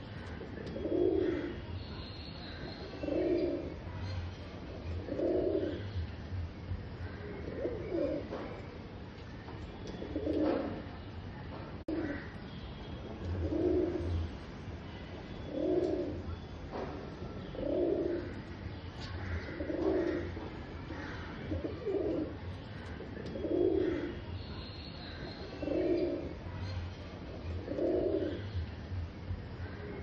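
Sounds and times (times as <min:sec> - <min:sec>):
pigeon cooing: 0:00.3 - 0:01.7, 0:02.9 - 0:03.9, 0:04.9 - 0:05.9, 0:07.4 - 0:08.4, 0:10.0 - 0:10.9, 0:13.4 - 0:14.2, 0:15.5 - 0:16.3, 0:17.5 - 0:18.5, 0:19.5 - 0:24.3, 0:25.5 - 0:26.4, 0:27.5 - 0:28.5.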